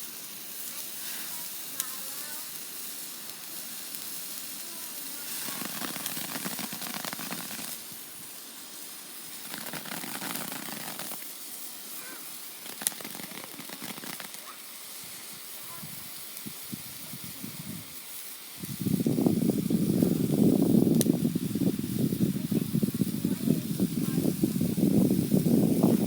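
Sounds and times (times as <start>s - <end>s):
fireworks fizzing and hissing: 0.0s - 26.0s
firework pop: 5.3s - 8.0s, 9.3s - 11.3s, 12.6s - 14.5s, 20.8s - 21.2s.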